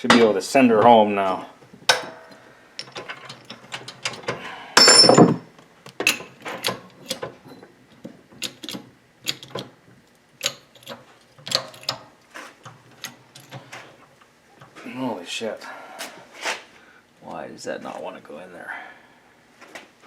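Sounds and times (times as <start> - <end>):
metal clicks and knocks: 1.9 - 7.3, 8.0 - 9.7, 10.4 - 13.7.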